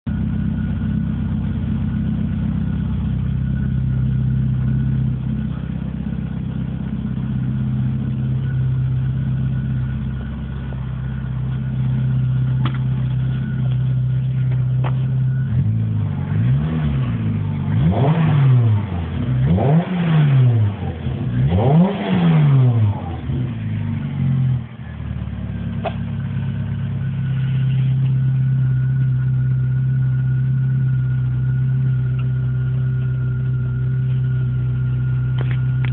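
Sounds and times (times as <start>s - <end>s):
car engine idling: 0.1s - 35.9s
engine revving: 1.7s - 24.8s.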